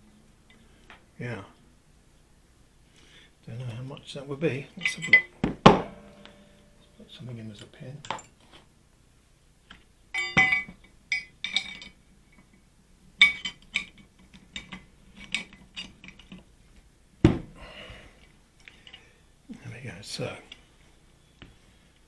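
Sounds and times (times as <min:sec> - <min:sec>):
metal hinge parts clinking: 0:04.6 - 0:07.1, 0:10.2 - 0:12.5, 0:13.2 - 0:16.4.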